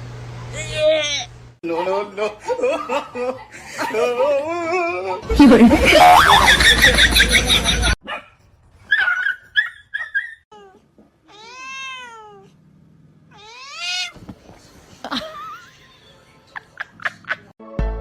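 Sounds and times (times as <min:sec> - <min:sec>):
cat meowing: 0:10.6 - 0:12.5, 0:13.3 - 0:14.2.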